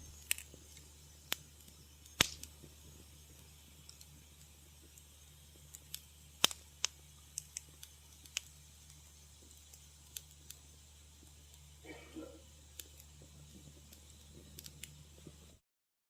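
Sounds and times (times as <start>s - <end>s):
wood fire crackling: 0.0s - 15.6s
low hum: 7.8s - 15.6s.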